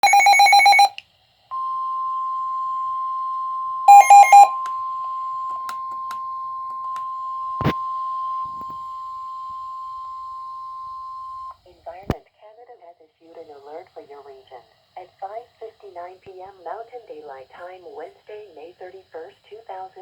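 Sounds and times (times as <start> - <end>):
steady warning alarm tone: 0.0 - 0.9, 3.0 - 11.5
loud short low beeps: 3.9 - 4.6.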